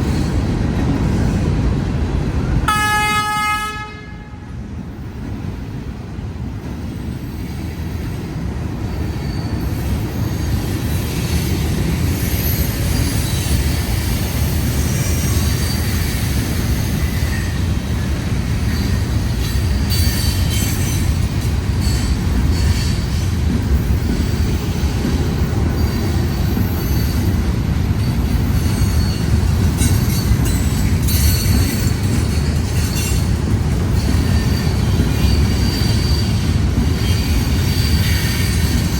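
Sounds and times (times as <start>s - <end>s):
train wheels rumbling on rails: 0.0s - 38.9s
high-pitched wheel squeals: 34.0s - 38.8s.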